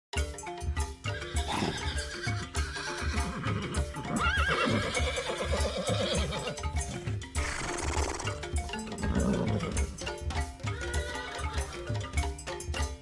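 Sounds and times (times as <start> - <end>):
background music with steady beat: 0.1 - 13.0
animal call wavering: 7.4 - 8.4.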